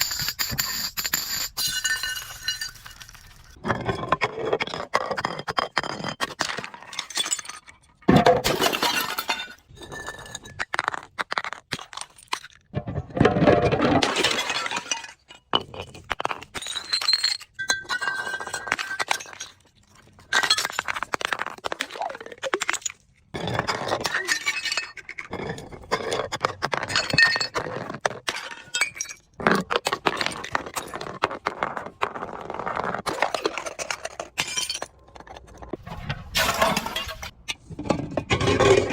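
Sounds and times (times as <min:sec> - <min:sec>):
glass bottles shattering: 0:00.0 - 0:03.6, 0:05.9 - 0:10.6, 0:12.8 - 0:15.8, 0:33.3 - 0:34.9, 0:35.9 - 0:37.3.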